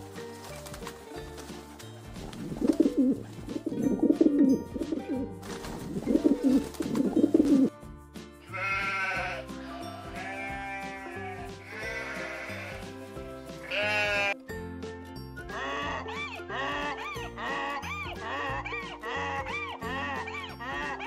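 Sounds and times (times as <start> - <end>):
pigeons cooing: 0.0 - 7.7
background music: 0.0 - 21.0
sheep bleat: 8.4 - 13.0, 13.6 - 14.4.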